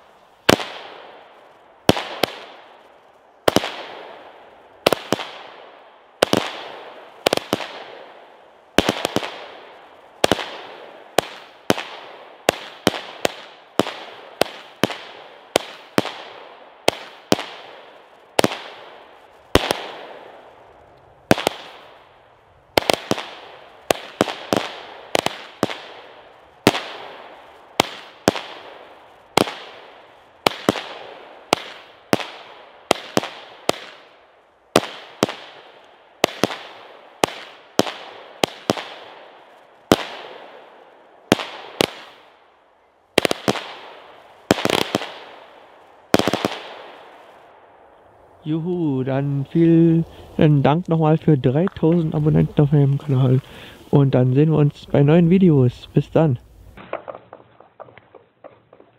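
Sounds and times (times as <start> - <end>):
firework bangs: 0.0 - 42.5, 43.1 - 58.9.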